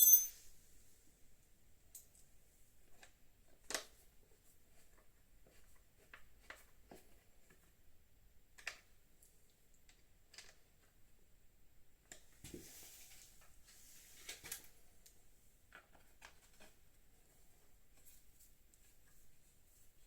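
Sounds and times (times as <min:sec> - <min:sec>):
tools clicking and tapping: 0:00.0 - 0:00.4.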